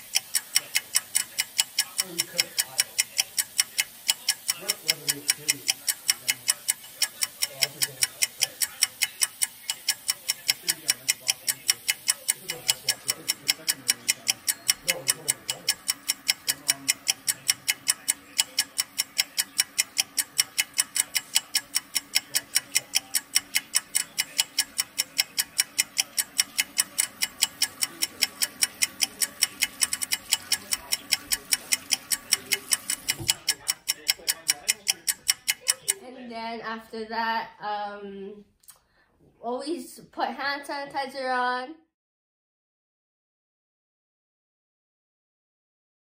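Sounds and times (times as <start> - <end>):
clock ticking: 0.0 - 36.0
faint running tap water: 26.5 - 33.3.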